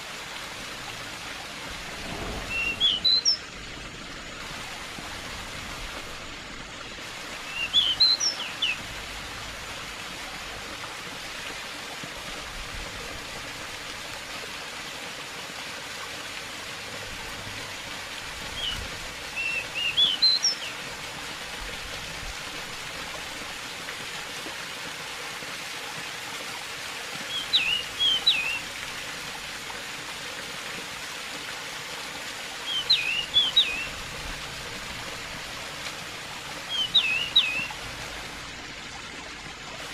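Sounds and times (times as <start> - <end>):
running water: 0.0 - 39.9
bird singing chirpy phrases: 2.5 - 3.4, 7.5 - 8.8, 19.4 - 20.7, 27.3 - 28.6, 32.7 - 34.0, 36.7 - 37.7.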